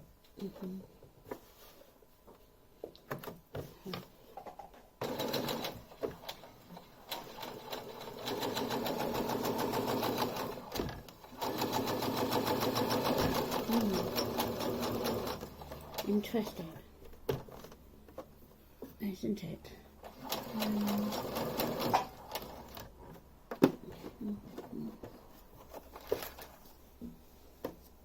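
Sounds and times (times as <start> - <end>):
sewing machine stitching: 5.0 - 6.5, 7.1 - 16.2, 20.0 - 22.9.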